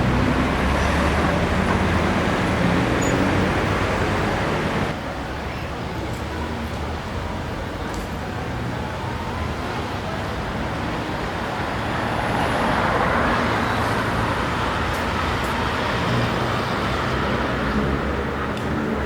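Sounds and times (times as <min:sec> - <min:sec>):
vehicle passing close: 0:00.0 - 0:05.0
traffic rumble: 0:00.0 - 0:19.0.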